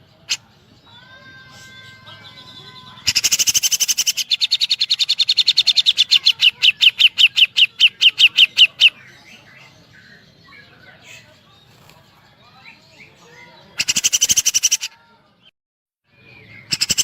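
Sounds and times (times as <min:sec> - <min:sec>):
faint bird chirps: 0:00.0 - 0:17.0
bird rattling song: 0:03.0 - 0:08.9, 0:13.8 - 0:14.9, 0:16.6 - 0:17.0.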